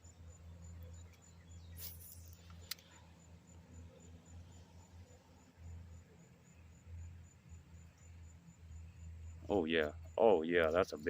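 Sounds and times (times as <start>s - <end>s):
high insect chirp: 0.0s - 11.0s
low steady hum: 0.0s - 11.0s
short hiss: 1.7s - 2.9s.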